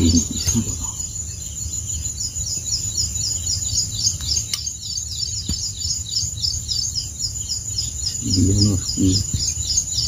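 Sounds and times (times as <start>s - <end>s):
bird chirping rapidly: 0.0s - 10.0s
sharp clicks: 4.2s - 4.7s.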